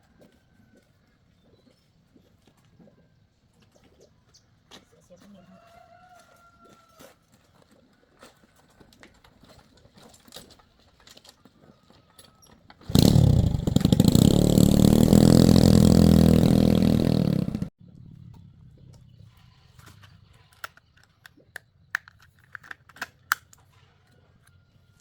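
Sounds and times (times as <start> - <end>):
engine running: 12.9 - 17.7.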